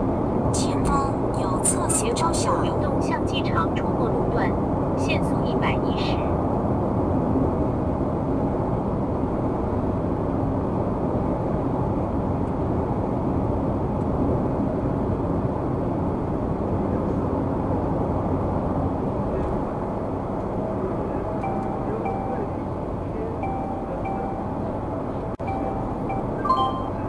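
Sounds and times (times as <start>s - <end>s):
faint constant hum: 0.0s - 12.2s
car road noise from inside: 14.8s - 27.0s.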